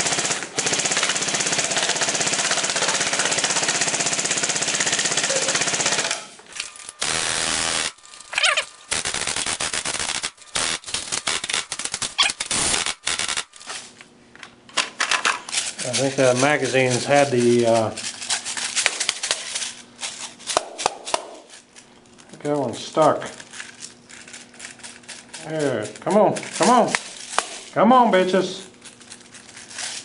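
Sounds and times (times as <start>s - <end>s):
airsoft gun firing bursts: 0.0s - 6.3s, 7.0s - 13.5s.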